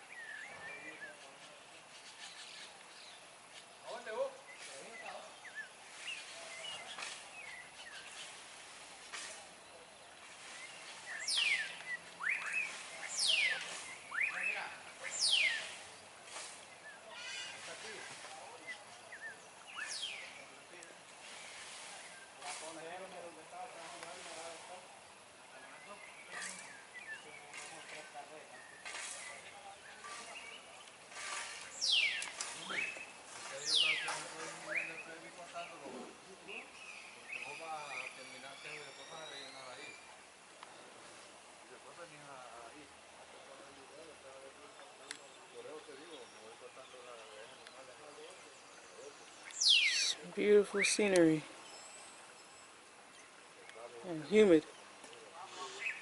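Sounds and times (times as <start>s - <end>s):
birds chirping: 0.0s - 56.0s
faint bird chirps: 25.5s - 40.9s, 45.1s - 56.0s
bird call sweeping downward: 49.5s - 51.0s
quick rising bird notes: 49.6s - 51.0s.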